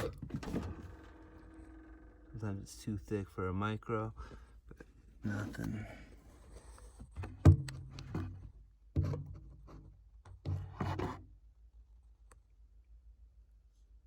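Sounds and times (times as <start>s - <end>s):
handling rubbing and scraping: 4.7s - 11.2s.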